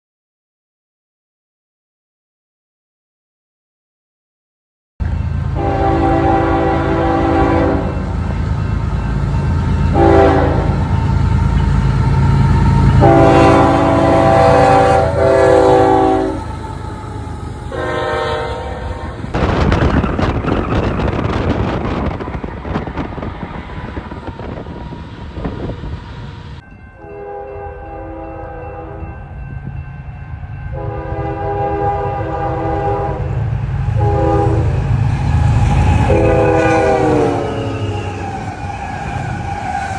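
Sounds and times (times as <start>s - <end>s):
train passing with clatter: 5.0s - 39.9s
locomotive horn blasts: 5.6s - 8.1s, 9.9s - 10.9s, 13.0s - 19.4s, 27.0s - 29.1s, 30.7s - 34.9s, 35.7s - 38.0s.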